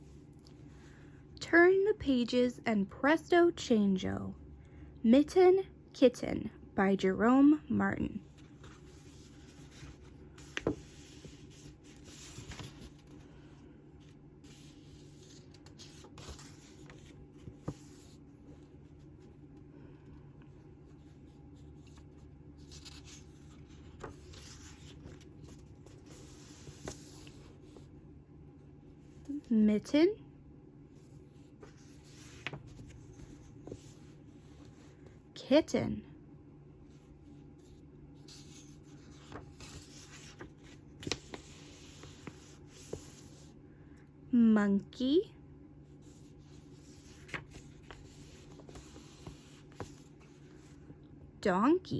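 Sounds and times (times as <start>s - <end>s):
low steady hum: 0.0s - 51.9s
book pages rustling: 8.2s - 19.5s, 20.8s - 28.0s, 31.0s - 35.2s, 36.9s - 43.5s, 46.0s - 50.9s.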